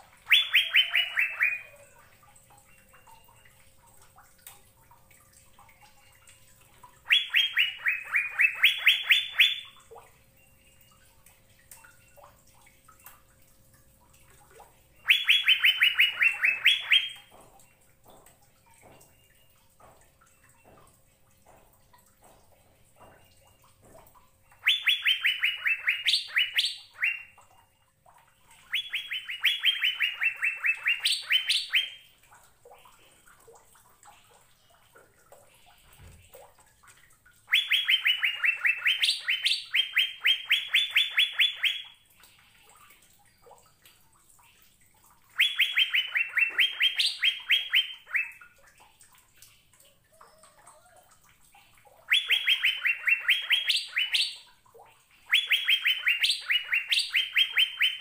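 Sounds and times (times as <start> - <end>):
bird singing fast phrases: 0.2 - 2.0, 7.0 - 9.8, 14.9 - 17.4, 24.4 - 27.8, 28.4 - 32.1, 37.5 - 42.4, 45.4 - 48.5, 51.9 - 54.5, 55.1 - 58.0.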